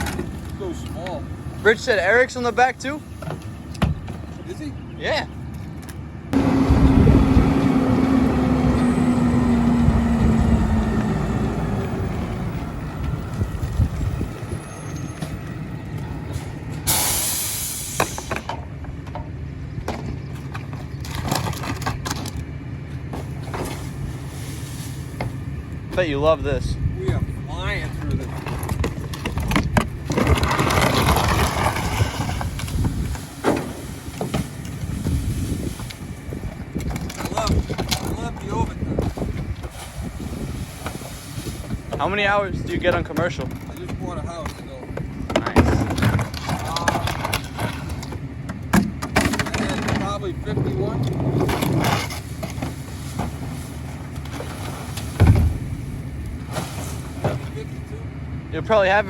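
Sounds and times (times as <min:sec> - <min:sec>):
truck engine rumble: 0:00.0 - 0:59.0
loud low thump: 0:55.2 - 0:55.8.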